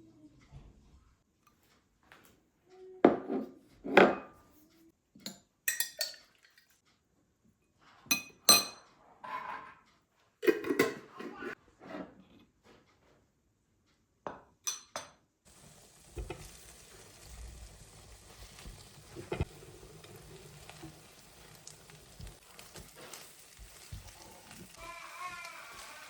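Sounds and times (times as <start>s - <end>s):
food sizzling in a pan: 15.5s - 26.0s.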